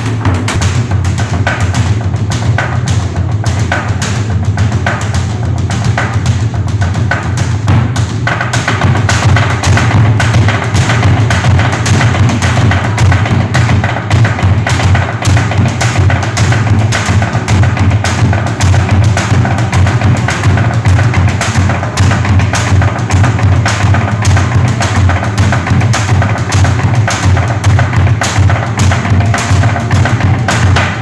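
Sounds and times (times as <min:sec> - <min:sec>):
large drum beaten: 0:00.0 - 0:31.0
sharp wooden knocks: 0:07.1 - 0:31.0.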